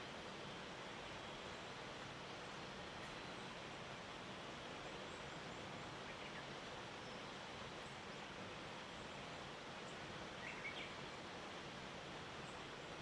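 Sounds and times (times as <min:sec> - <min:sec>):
faint outdoor ambience hiss: 0:00.0 - 0:13.0
faint small bird chirps: 0:04.4 - 0:11.2.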